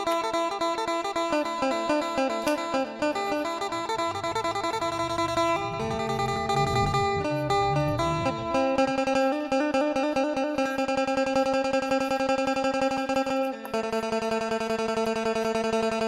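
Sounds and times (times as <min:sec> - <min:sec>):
steady drone: 0:03.4 - 0:09.1
deep bass notes: 0:03.7 - 0:08.9.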